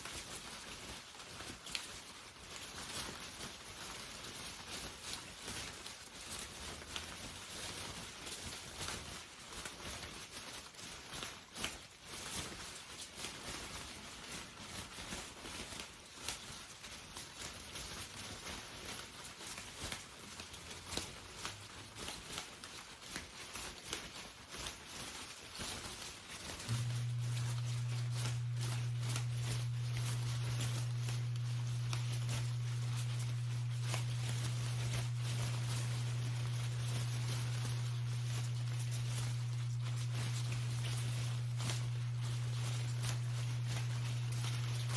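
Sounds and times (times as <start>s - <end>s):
steady low hum: 26.7s - 44.9s.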